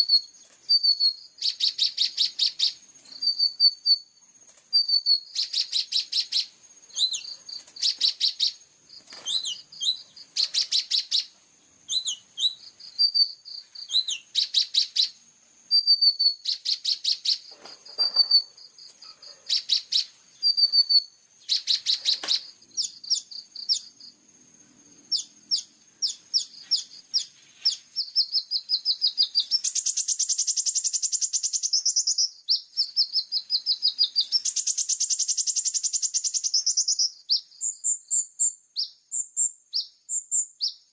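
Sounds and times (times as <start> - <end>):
bird high whistled notes: 0.0 - 4.1, 4.8 - 8.6, 11.9 - 17.4, 19.5 - 23.8
bird rattling trills: 4.7 - 24.0, 25.1 - 32.2, 32.8 - 37.0.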